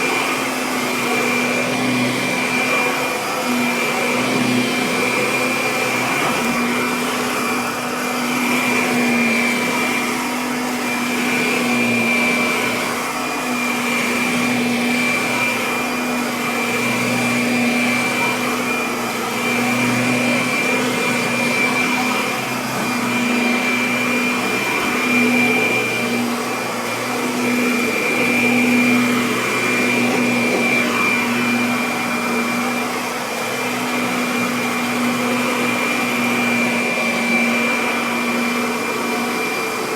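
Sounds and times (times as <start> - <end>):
upright vacuum cleaner running: 0.0 - 39.9.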